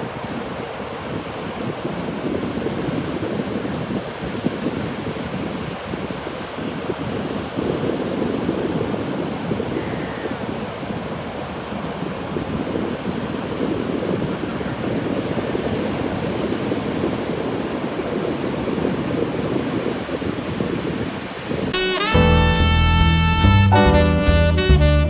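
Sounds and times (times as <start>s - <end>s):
wind on microphone: 0.0s - 22.0s
ocean surf rushing: 0.0s - 22.2s
music with drums and saxophone: 21.7s - 25.0s.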